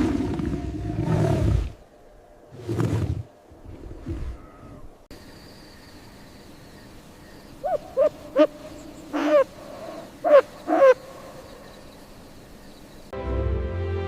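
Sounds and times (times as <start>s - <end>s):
soft music with held notes: 13.2s - 14.0s.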